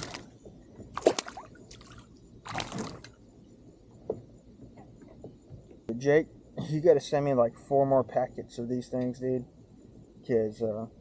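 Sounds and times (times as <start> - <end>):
water splashing: 0.9 - 3.2.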